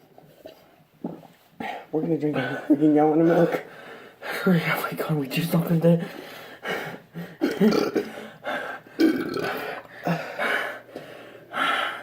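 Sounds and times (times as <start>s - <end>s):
person gulping milk: 1.0s - 1.4s, 9.0s - 9.9s
person burping: 7.4s - 8.1s, 9.0s - 9.6s.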